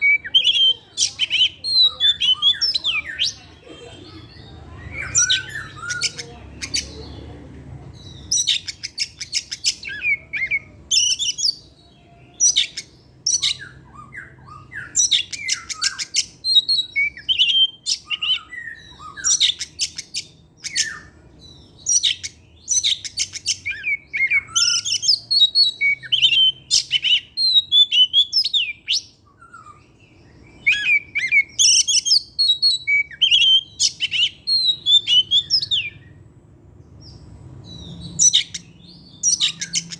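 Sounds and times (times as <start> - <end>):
songbird singing varied song: 0.0 - 39.9.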